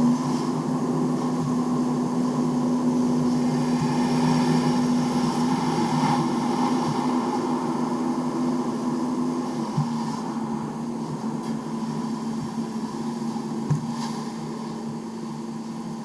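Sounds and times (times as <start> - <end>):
diesel engine running: 0.0 - 13.6.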